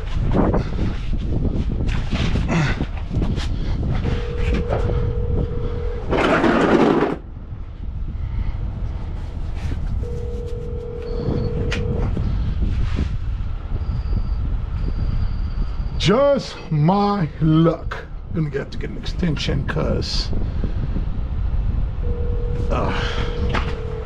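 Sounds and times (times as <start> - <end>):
steady hum: 0.0 - 13.8, 20.3 - 24.0
low rumble: 0.0 - 16.0, 20.2 - 24.0.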